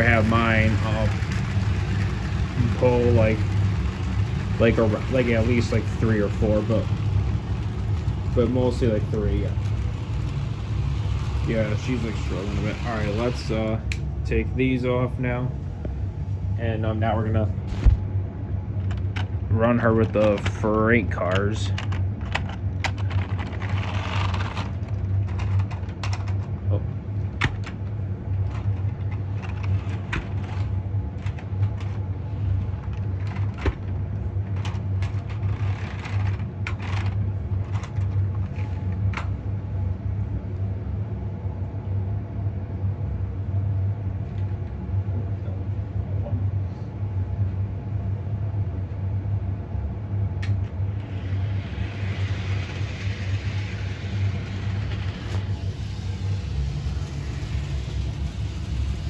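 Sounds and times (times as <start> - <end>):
plastic toy train cars clicking: 0.0 - 14.0, 18.9 - 26.6, 32.8 - 39.4, 50.4 - 59.0
steady low hum: 0.0 - 59.0.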